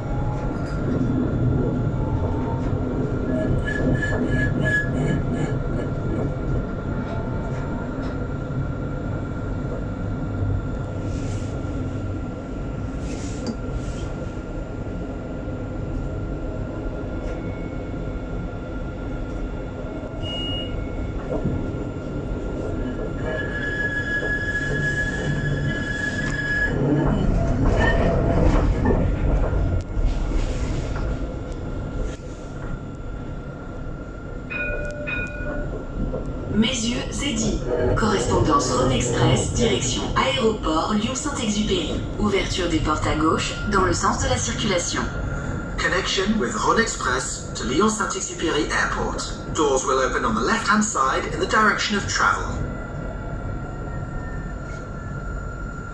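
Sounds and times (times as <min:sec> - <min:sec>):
tram rolling rumble: 0:00.0 - 0:55.9
high wheel squeal: 0:23.2 - 0:26.8.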